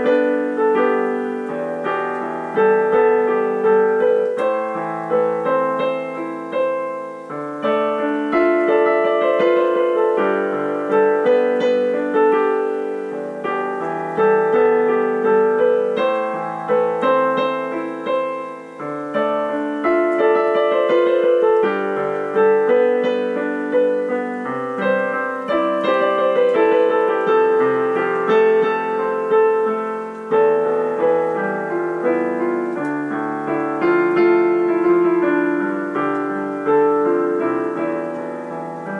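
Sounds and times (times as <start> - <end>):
gentle piano music: 0.0 - 38.9.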